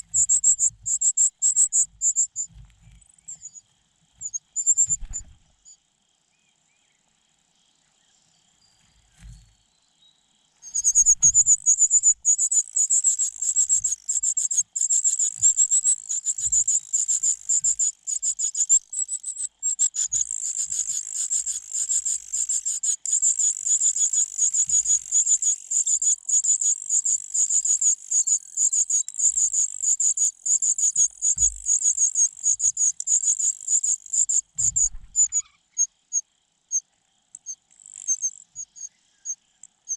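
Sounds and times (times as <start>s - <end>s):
soft thumps in nest: 9.0s - 9.5s
nestling birds begging: 10.7s - 29.7s.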